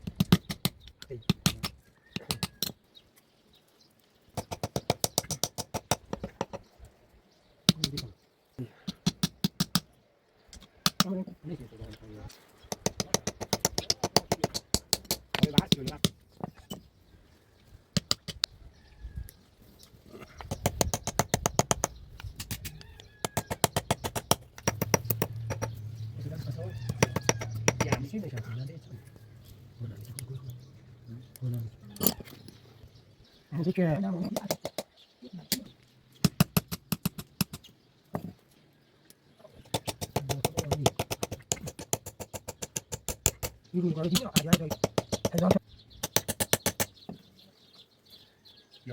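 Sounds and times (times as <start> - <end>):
hammer tapping on metal: 26.9 - 28.1.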